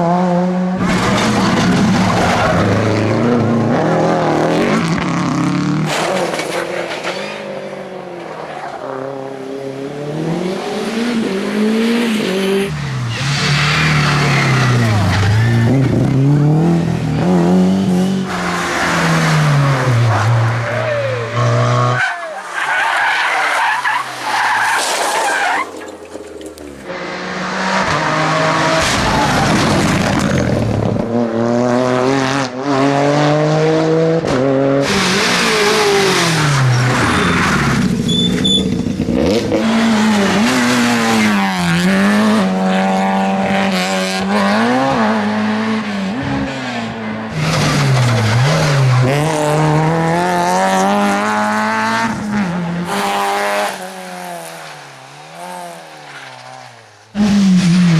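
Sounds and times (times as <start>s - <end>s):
rally car engines revving: 0.0s - 57.9s.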